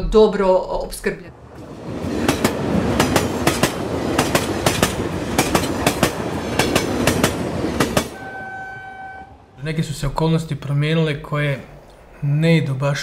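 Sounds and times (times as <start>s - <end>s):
train wheels clattering over rail joints: 1.6s - 8.2s.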